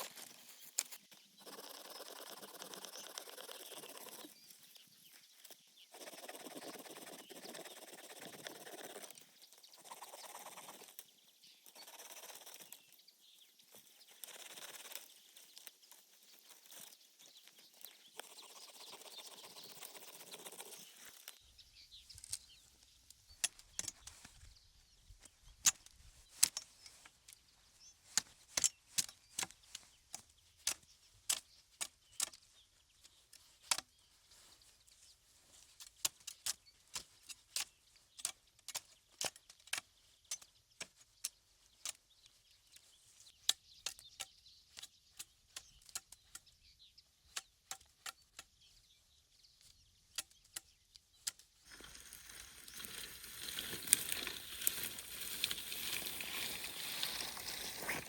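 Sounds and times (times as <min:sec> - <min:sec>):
sticks clicking and snapping: 0:28.1 - 0:32.5, 0:33.1 - 0:33.9, 0:35.8 - 0:42.0, 0:47.2 - 0:48.6
rustling: 0:51.7 - 0:58.0.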